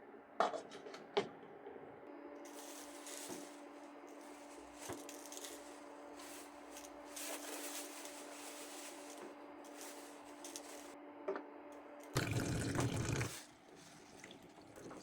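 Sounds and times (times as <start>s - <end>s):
steady hum: 1.8s - 12.9s
soft rubbing: 2.5s - 11.0s.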